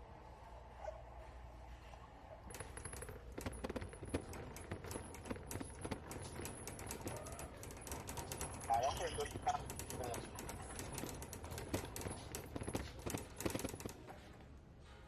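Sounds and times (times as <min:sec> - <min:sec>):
small clicks and clinks: 0:02.5 - 0:14.3.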